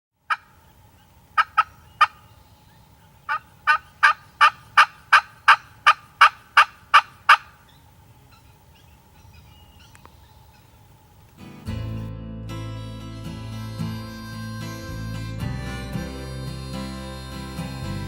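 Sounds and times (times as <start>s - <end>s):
turkey yelping: 0.3s - 10.8s.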